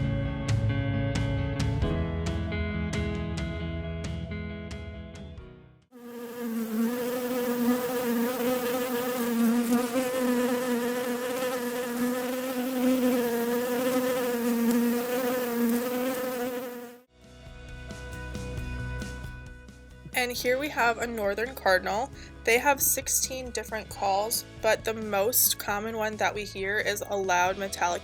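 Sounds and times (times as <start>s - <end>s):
bee buzzing: 6.0s - 17.1s.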